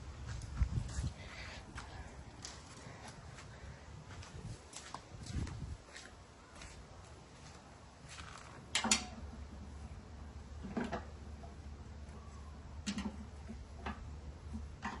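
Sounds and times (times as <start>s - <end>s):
low steady hum: 0.0s - 15.0s
sharp clicks and knocks: 8.3s - 9.3s, 12.8s - 15.0s.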